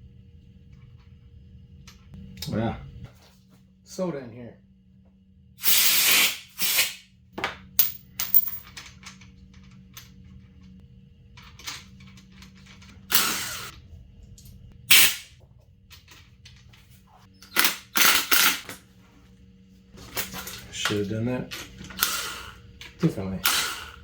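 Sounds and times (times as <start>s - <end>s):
short hissing bursts: 5.6s - 7.0s.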